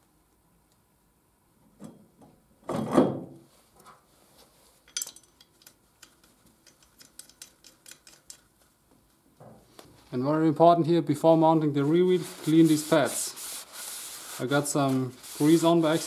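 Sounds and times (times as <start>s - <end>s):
small metallic clicks: 4.9s - 8.5s.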